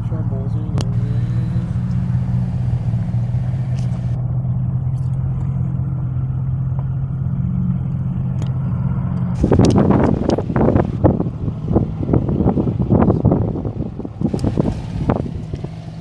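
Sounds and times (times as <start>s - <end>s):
diesel engine idling: 0.2s - 4.2s, 9.4s - 11.0s, 14.3s - 16.0s
wind buffeting microphone: 0.8s - 4.2s, 9.4s - 16.0s.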